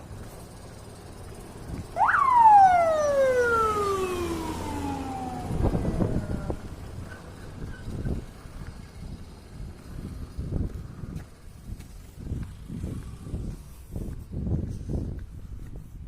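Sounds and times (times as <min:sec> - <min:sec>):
siren whoop: 0:02.0 - 0:06.6.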